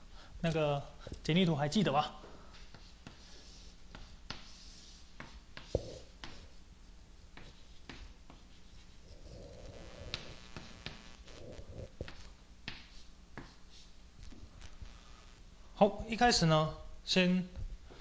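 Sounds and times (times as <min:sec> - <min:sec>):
pen scratching strokes: 0:02.5 - 0:06.5, 0:07.4 - 0:14.0.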